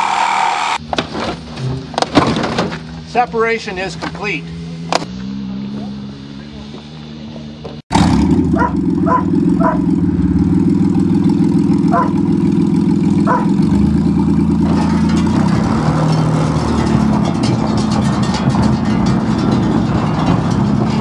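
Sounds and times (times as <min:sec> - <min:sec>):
car engine running: 0:00.0 - 0:21.0.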